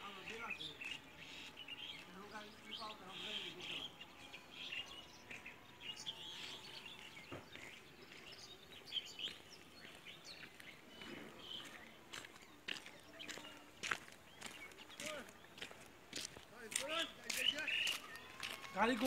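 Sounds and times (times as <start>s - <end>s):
faint outdoor background noise: 0.0s - 19.0s
small birds chirping: 0.0s - 19.0s.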